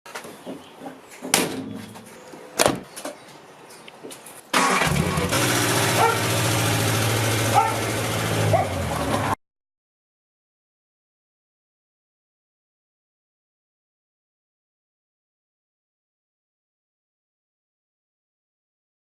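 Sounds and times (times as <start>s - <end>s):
motorcycle engine idling: 4.9s - 9.0s.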